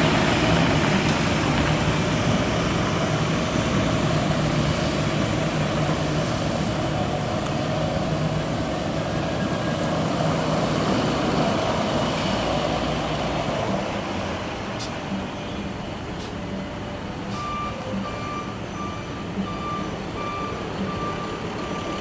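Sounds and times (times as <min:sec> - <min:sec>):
rushing hiss of water: 0:00.0 - 0:15.0
diesel engine running: 0:00.0 - 0:22.0.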